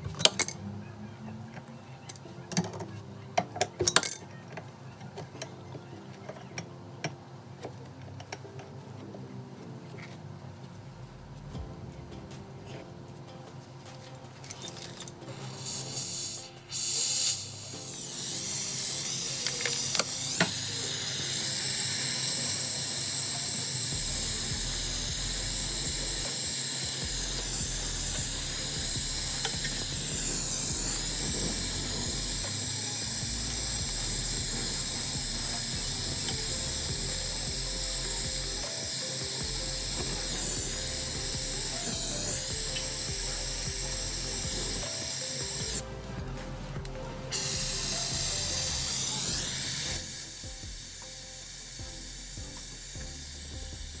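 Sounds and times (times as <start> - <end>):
pressurized gas hissing: 14.6 - 54.0.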